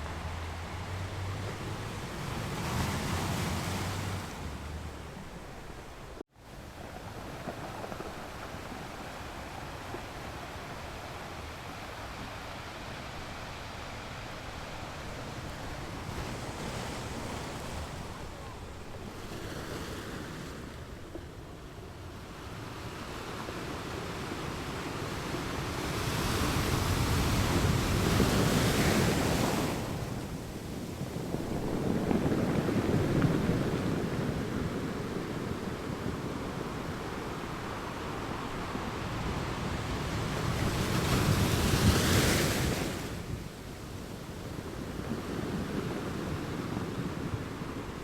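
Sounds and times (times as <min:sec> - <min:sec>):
ocean waves washing on beach: 0:00.0 - 0:48.0.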